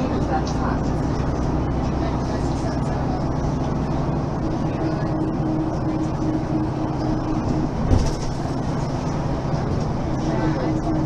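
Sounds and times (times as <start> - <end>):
bus diesel engine humming: 0.0 - 11.0
thump: 7.8 - 8.3.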